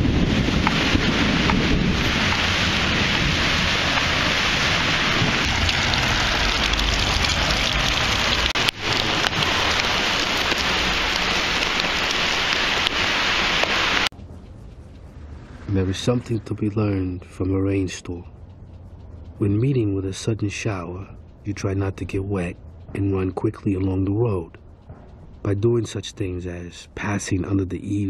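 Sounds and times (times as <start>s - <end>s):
heavy rain on pavement: 0.0s - 14.1s.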